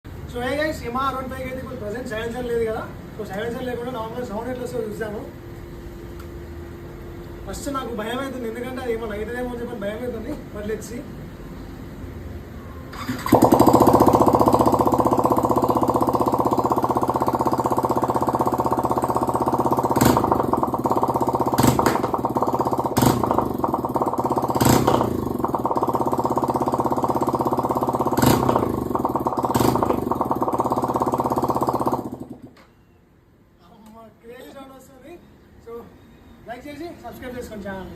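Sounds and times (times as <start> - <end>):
motorcycle engine revving: 12.9 - 32.6.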